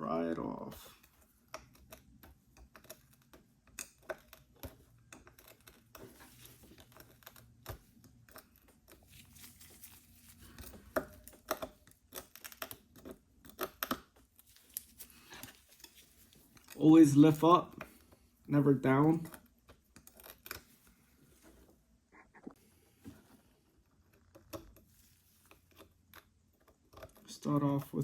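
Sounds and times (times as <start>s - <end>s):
pry tool clicking and scraping glass: 1.1s - 6.0s.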